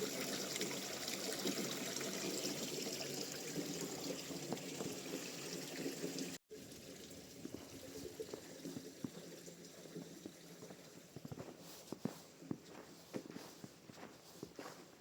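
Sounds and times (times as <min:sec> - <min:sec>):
water running and trickling: 0:00.0 - 0:12.4
crunching footsteps: 0:10.0 - 0:15.0.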